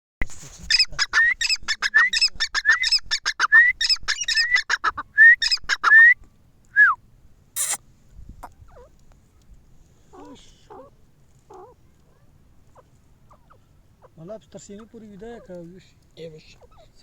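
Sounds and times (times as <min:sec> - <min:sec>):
brief sharp noise: 0:07.6 - 0:07.8
francolin calling: 0:07.6 - 0:07.8, 0:11.5 - 0:14.3.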